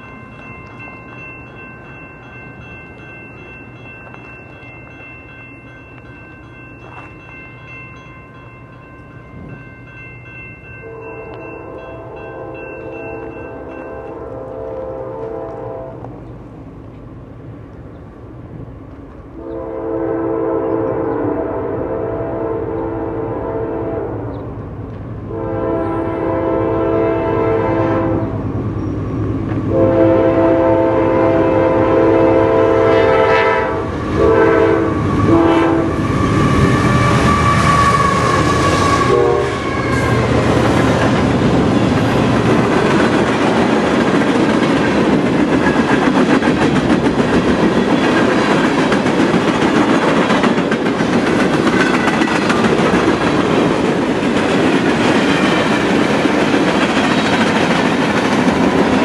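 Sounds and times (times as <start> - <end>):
locomotive air horn blasts: 10.8 - 16.0, 19.4 - 24.3, 25.3 - 28.4, 29.7 - 40.4
train wheels clicking over rail joints: 39.6 - 59.0.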